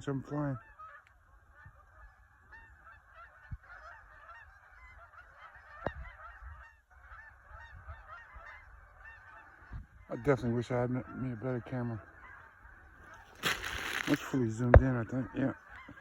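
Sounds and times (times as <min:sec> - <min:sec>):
geese honking: 0:00.1 - 0:16.0.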